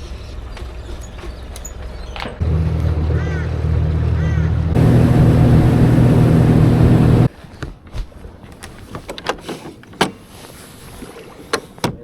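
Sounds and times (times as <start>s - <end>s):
outboard motor running: 2.4s - 7.3s.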